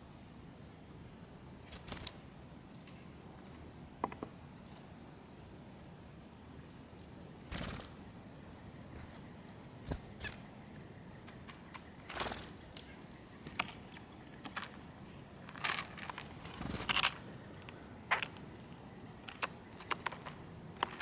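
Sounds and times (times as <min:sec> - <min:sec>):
birds tapping at seed feeder: 0:07.5 - 0:10.5.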